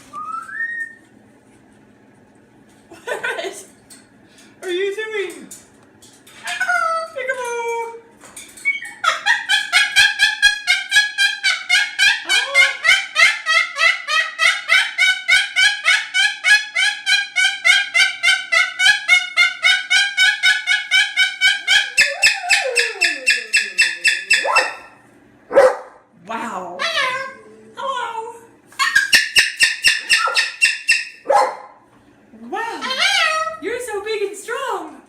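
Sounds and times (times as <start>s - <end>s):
cockatoo calling loudly: 8.8s - 25.9s, 28.8s - 31.7s.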